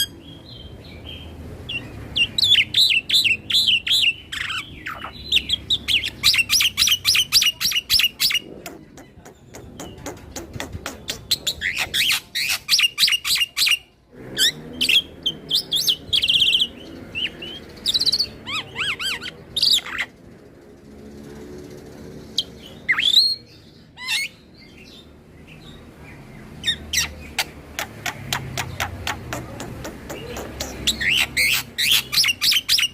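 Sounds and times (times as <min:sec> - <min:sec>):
bird singing with chips and whistles: 0:10.8 - 0:20.2, 0:22.3 - 0:25.0, 0:26.6 - 0:32.9.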